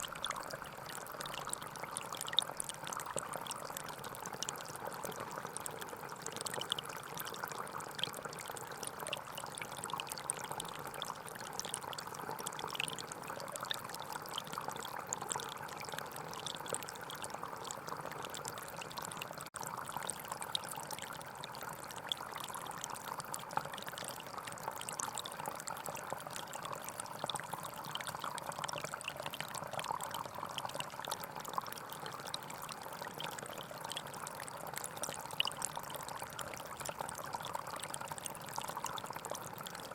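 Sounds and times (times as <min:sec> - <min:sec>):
forest stream flowing: 0:00.0 - 0:00.4.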